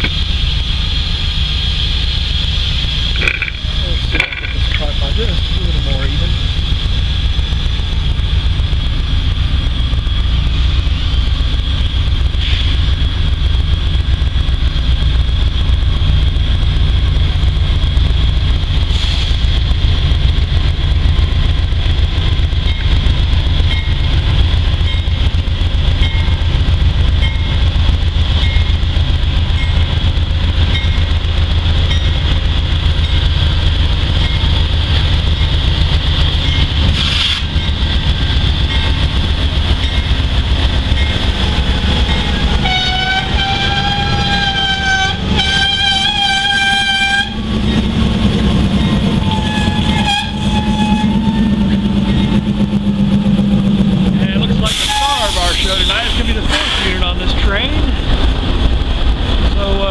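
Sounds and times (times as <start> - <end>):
high whine: 0.0 - 18.8
freight train rumbling: 0.0 - 59.9
train clanks: 0.0 - 59.9.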